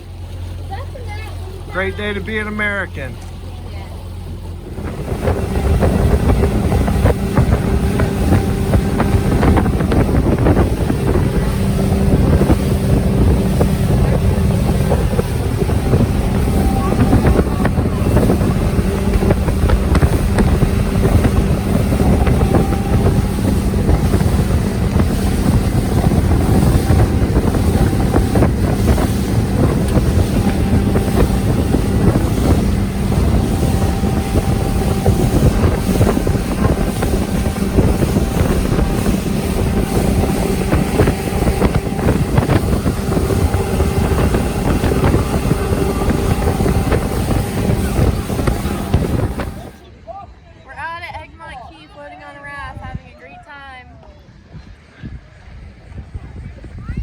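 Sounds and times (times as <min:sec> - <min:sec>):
outboard motor running: 0:00.0 - 0:49.8
wind buffeting microphone: 0:00.0 - 0:49.9, 0:51.0 - 0:53.5, 0:54.2 - 0:57.0.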